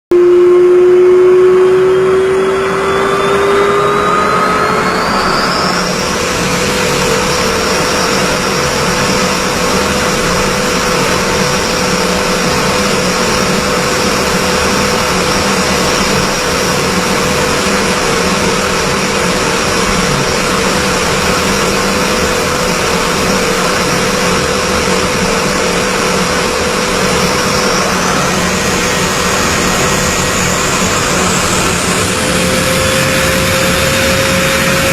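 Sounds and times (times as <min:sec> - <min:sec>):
aircraft engines spooling up: 0:00.1 - 0:34.9.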